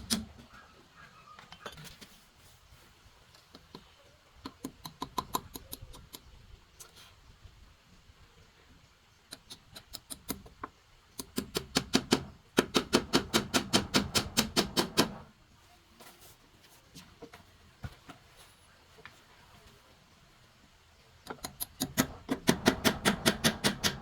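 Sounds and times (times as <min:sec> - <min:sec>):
hand tool knocking: 0:21.3 - 0:24.0.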